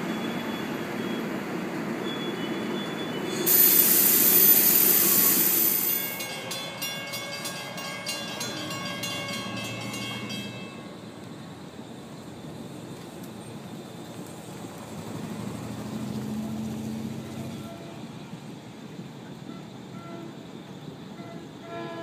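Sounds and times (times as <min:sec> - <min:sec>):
train rumbling past: 0:00.0 - 0:22.0
loud hiss: 0:03.3 - 0:06.4
rapid regular ringing: 0:03.3 - 0:10.5.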